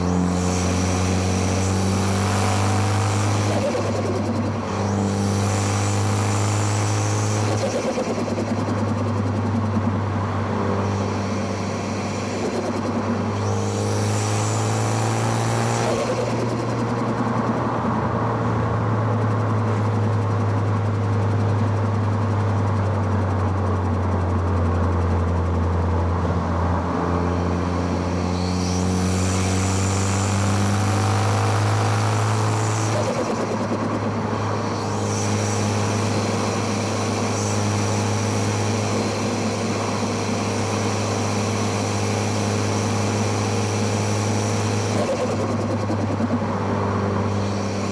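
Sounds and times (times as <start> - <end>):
car engine revving: 0.0 - 18.0, 27.2 - 47.9.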